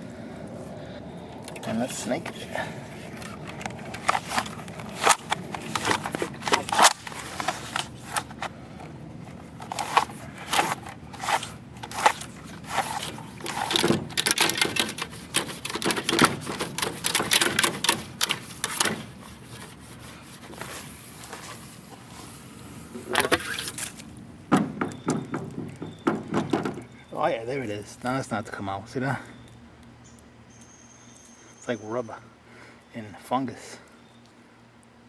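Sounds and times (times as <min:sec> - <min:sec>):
plumbing snake cable rattling in pipe: 0:09.6 - 0:19.6.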